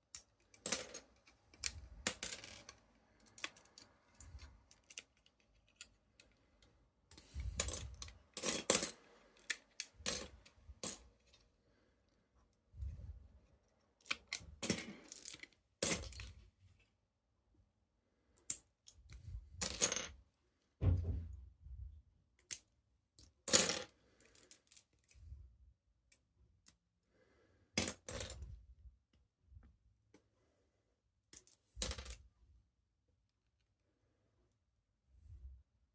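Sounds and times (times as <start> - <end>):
plastic parts clicking and rattling: 0.0 - 11.5, 13.6 - 16.4.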